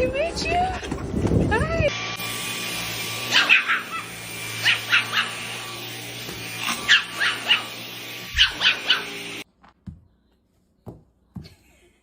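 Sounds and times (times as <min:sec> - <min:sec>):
dog yipping: 0:03.3 - 0:05.5, 0:06.8 - 0:09.2.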